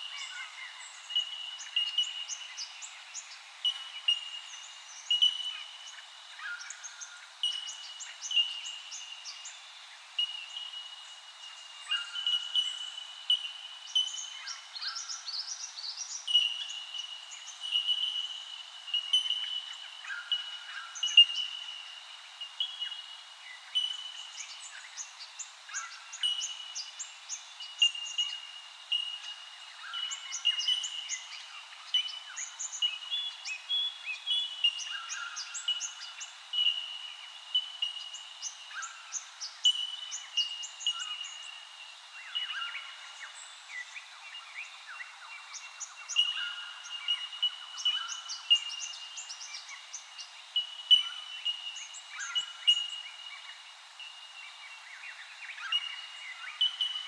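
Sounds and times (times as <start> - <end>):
chorus of birds chirping: 0.0 - 57.0.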